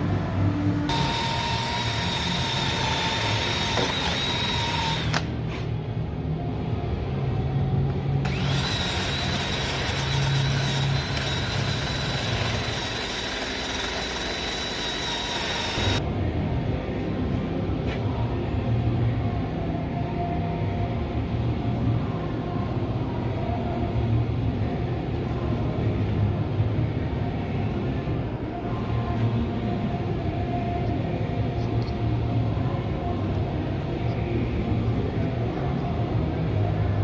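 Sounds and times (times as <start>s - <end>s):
power tool whining: 0.9s - 5.3s, 8.2s - 16.0s.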